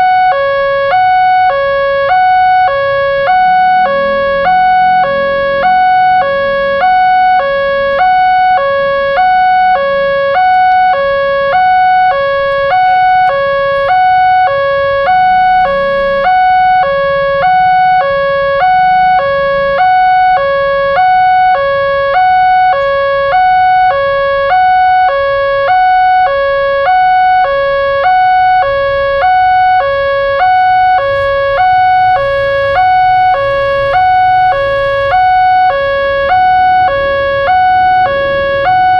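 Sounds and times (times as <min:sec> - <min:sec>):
level crossing two-tone alarm: 0:00.0 - 0:38.9.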